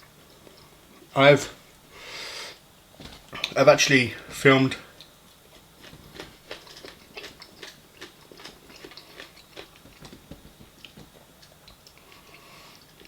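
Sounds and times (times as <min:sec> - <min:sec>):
person chewing food: 0:03.1 - 0:03.6, 0:04.9 - 0:13.0.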